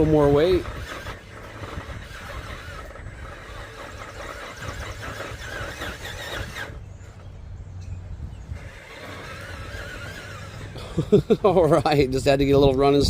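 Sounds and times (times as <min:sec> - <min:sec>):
rc car electric motor whining: 0:00.0 - 0:07.4, 0:08.4 - 0:10.9
steady low hum: 0:00.0 - 0:13.0.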